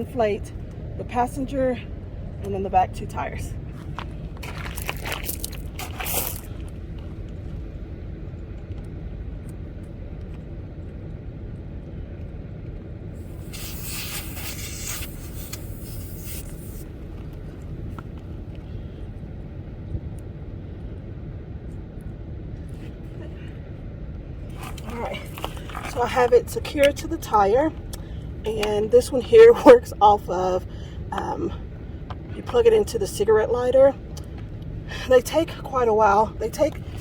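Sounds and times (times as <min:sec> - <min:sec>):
steady low rumble: 0:00.0 - 0:37.0
air hissing from tire valve: 0:13.2 - 0:17.0.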